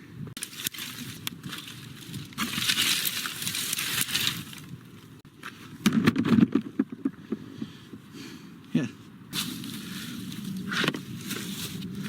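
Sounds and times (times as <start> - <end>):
box crackling and rustling: 0.4 - 5.2, 9.4 - 12.0.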